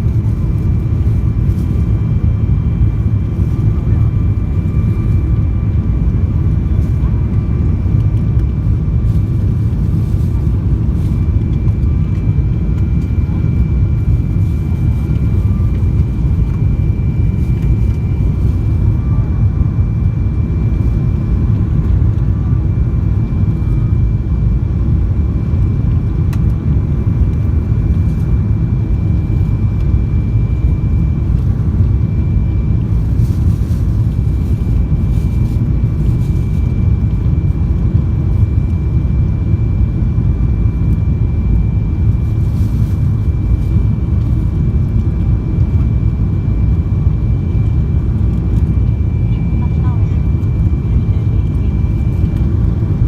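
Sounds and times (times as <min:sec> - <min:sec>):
airliner cabin rumble: 0:00.0 - 0:53.0
faint high whine: 0:08.4 - 0:24.7, 0:27.6 - 0:53.0.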